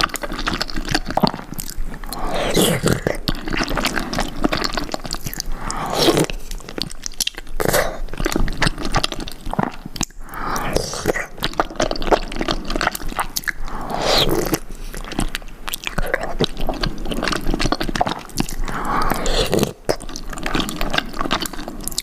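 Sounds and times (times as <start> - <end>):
lip smacking: 0.0 - 22.0
wet chewing: 0.0 - 22.0.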